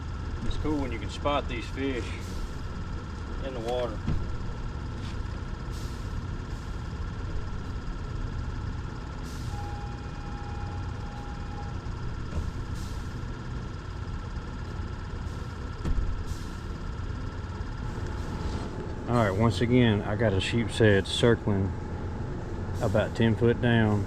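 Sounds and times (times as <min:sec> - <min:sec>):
machinery drone: 0:00.0 - 0:24.0
short steady tone: 0:09.4 - 0:11.9.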